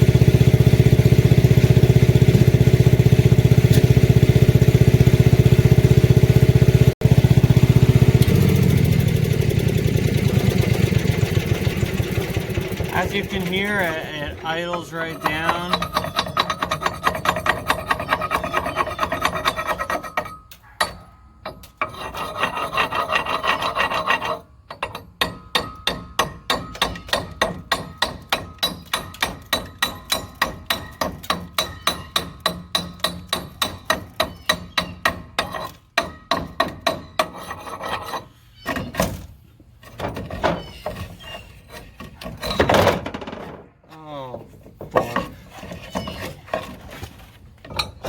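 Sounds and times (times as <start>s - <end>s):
welder engine idling hum: 0.0s - 18.1s
wire brush scrubbing metal: 10.2s - 20.5s, 21.6s - 24.6s, 37.0s - 38.6s.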